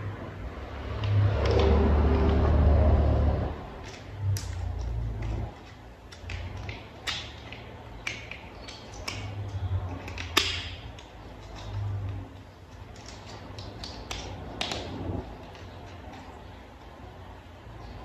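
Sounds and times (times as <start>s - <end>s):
plastic toy parts clicking: 3.8s - 16.4s.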